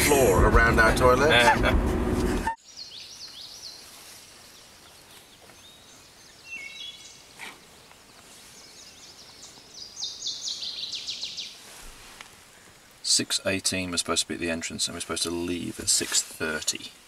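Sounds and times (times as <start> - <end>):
birds singing and chirping: 2.6 - 11.6
steady hiss: 10.3 - 17.0.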